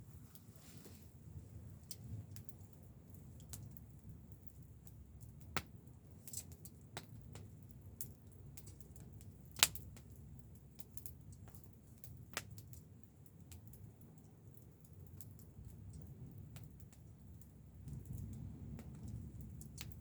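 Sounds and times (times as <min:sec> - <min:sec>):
wood fire crackling: 0:00.0 - 0:20.0
low steady rumble: 0:15.6 - 0:20.0.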